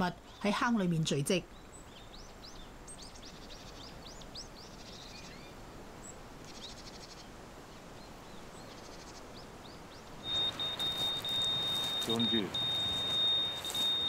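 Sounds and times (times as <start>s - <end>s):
background hiss: 0.0s - 14.0s
small birds chirping: 0.0s - 14.0s
bird rapid trill: 10.2s - 14.0s.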